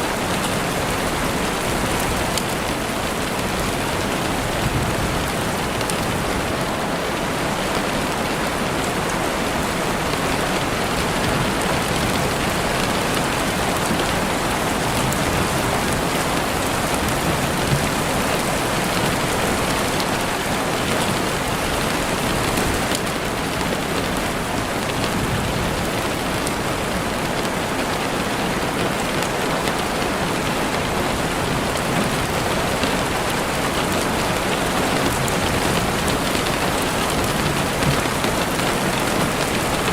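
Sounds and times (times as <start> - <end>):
heavy rain on a window: 0.0 - 39.9.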